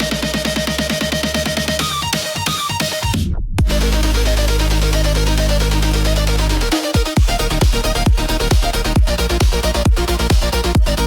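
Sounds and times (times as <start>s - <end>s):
electronic dance music: 0.0s - 11.0s
heavy sustained bass: 3.6s - 11.0s.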